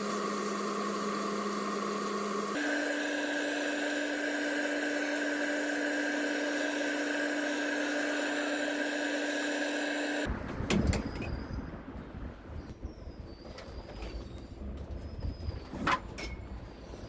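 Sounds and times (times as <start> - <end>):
electric motor humming and whining: 0.0 - 10.3.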